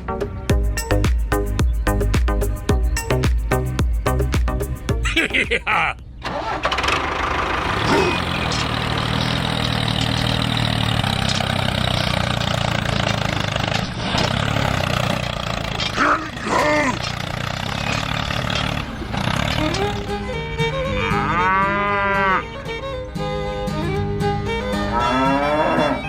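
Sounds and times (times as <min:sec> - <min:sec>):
small engine humming: 0:06.2 - 0:26.0.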